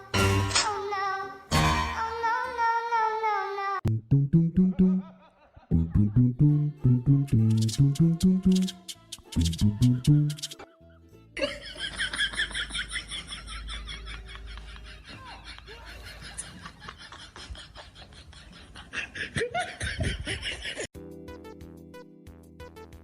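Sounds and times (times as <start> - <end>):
music: 0.0 - 2.4, 5.9 - 12.0, 21.0 - 23.0
people laughing: 4.7 - 6.6, 10.6 - 20.9.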